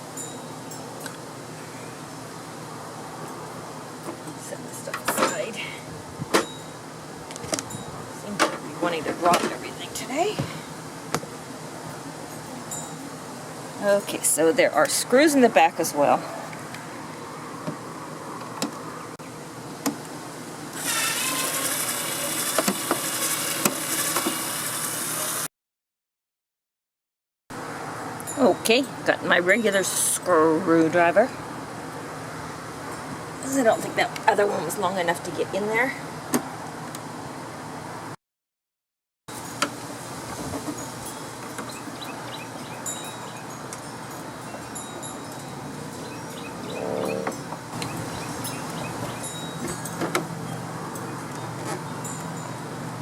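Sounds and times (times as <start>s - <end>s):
wind chimes tinkling: 0.0s - 1.2s, 6.4s - 6.8s, 7.6s - 8.2s, 12.3s - 13.2s, 40.7s - 53.0s.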